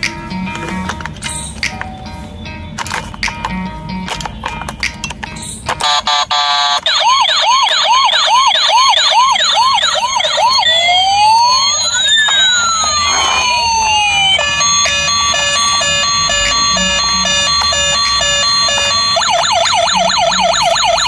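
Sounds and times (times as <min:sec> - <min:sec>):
toy police siren: 0:05.8 - 0:21.0.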